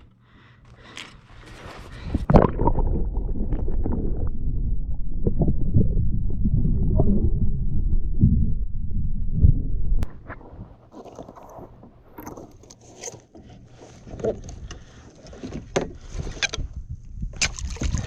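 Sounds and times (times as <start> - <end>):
low rumble: 1.9 - 10.9
water sloshing against plastic hull: 10.0 - 18.0.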